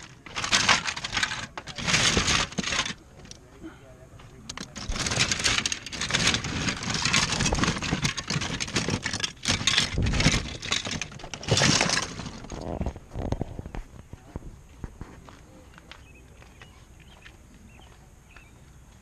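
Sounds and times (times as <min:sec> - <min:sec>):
plastic toys clattering: 0:00.0 - 0:03.5, 0:04.3 - 0:13.8.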